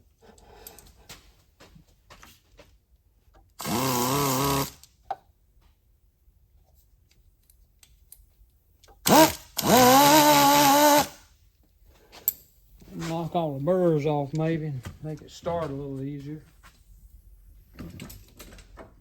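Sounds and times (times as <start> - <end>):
power tool whining: 3.6 - 4.8, 9.0 - 11.2.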